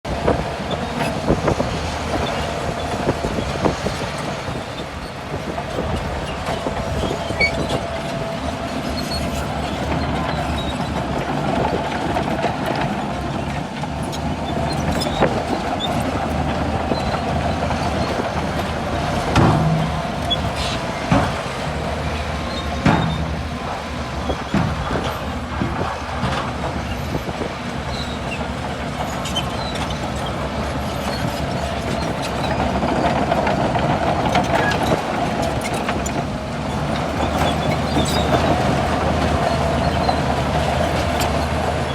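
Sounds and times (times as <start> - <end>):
bulldozer diesel engine running: 0.0 - 41.9
metallic clanks and knocks: 22.5 - 27.5.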